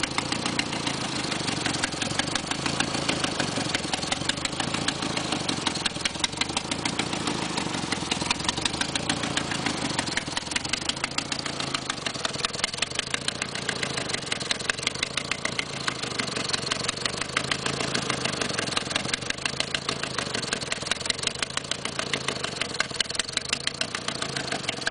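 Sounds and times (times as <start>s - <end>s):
car engine idling with ticking: 0.0s - 24.9s.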